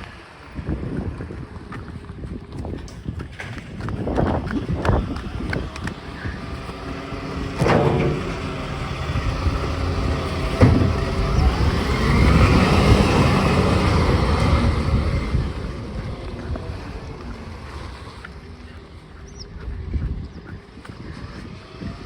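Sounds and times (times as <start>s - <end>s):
garbage truck engine revving: 5.3s - 18.3s.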